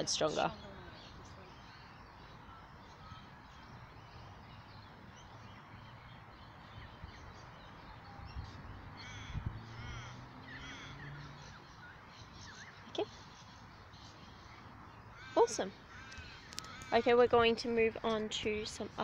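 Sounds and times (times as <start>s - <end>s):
faint outdoor background noise: 0.0s - 19.0s
bird giving short calls: 15.1s - 17.2s.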